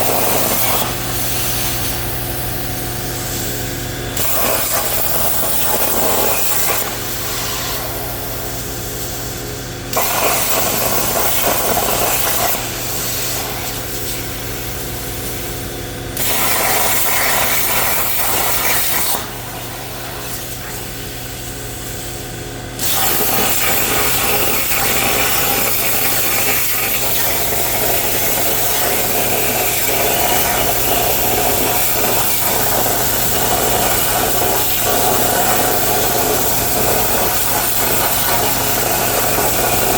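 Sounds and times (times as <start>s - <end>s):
plasma cutter hissing: 0.0s - 15.6s, 16.2s - 39.9s.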